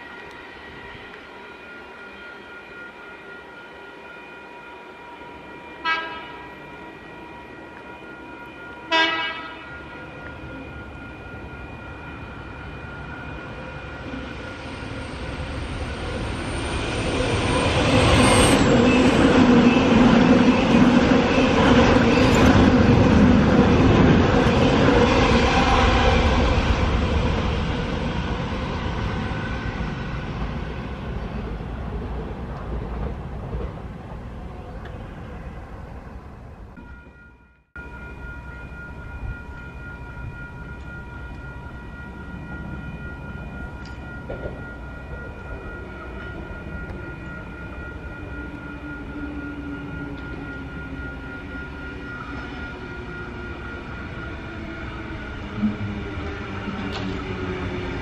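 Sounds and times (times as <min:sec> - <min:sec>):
train running past: 0:00.0 - 0:58.0
train horn toots: 0:05.8 - 0:06.6, 0:08.9 - 0:09.8.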